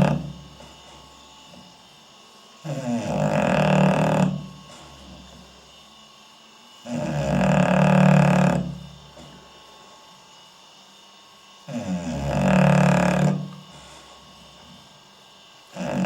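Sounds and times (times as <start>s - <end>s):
dog snoring: 0.0s - 1.6s, 2.6s - 5.7s, 6.8s - 9.4s, 11.6s - 15.0s, 15.7s - 16.0s.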